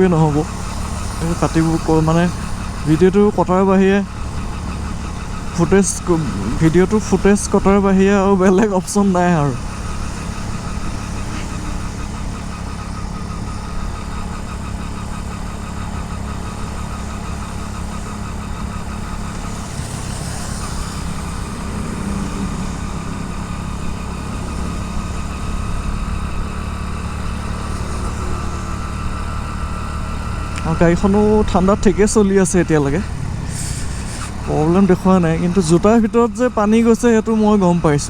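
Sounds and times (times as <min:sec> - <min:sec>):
motorcycle engine running: 0:00.0 - 0:38.0
wind and road noise: 0:00.0 - 0:38.0.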